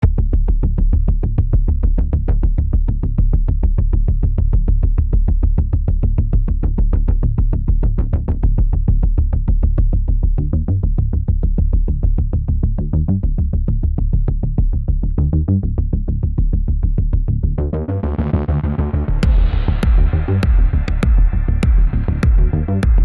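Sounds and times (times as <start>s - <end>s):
heavy steady bass: 0.0s - 23.0s
synthesizer electronic music: 17.6s - 23.0s.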